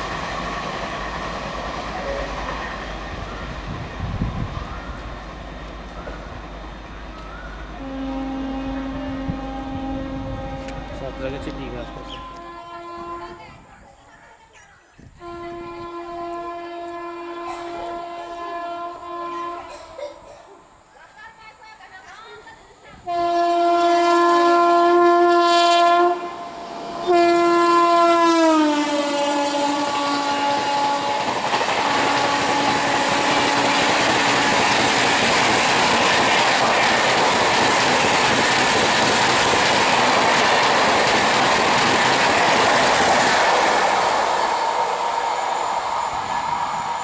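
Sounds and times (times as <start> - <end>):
train wheels rushing on rails: 0.0 - 13.1, 22.9 - 47.0
train horn blasts: 7.2 - 13.7, 15.2 - 20.3, 23.0 - 38.9.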